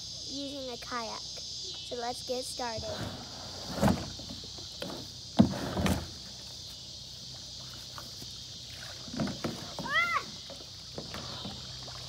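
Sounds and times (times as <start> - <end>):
insects chirring: 0.0 - 12.0
kayak paddle splashes and knocks: 7.6 - 12.0.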